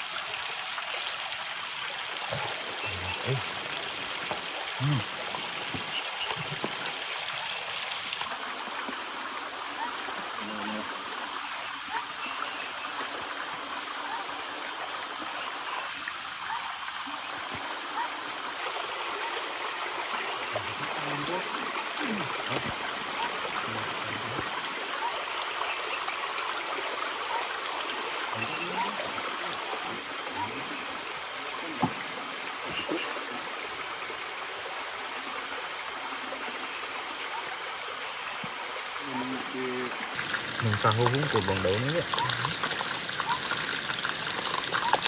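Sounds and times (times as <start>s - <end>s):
rushing water: 0.0s - 45.0s
water drips and splashes: 0.0s - 45.0s.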